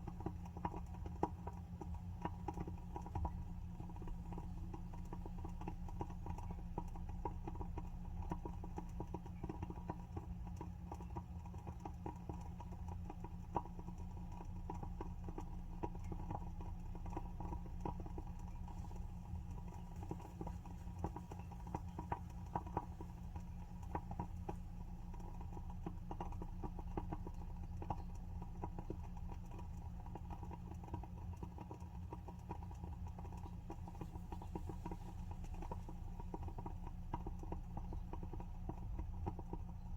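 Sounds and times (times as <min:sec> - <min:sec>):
candle wick crackling: 0:00.0 - 0:10.9, 0:12.2 - 0:39.9
steady low hum: 0:00.0 - 0:39.9.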